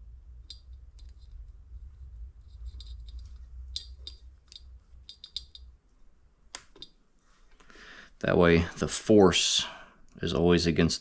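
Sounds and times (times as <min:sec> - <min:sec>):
low hum: 0:00.0 - 0:06.9
small metallic clicks: 0:02.4 - 0:05.7.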